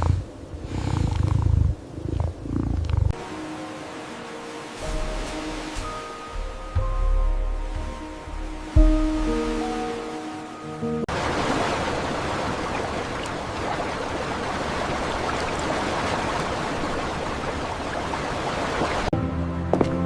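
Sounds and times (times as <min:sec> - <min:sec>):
rushing water: 0:03.1 - 0:19.2.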